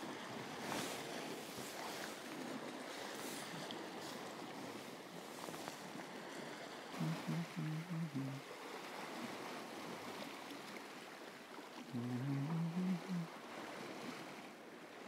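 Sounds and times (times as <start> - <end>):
low hummed tune: 7.0 - 8.4, 12.0 - 13.3.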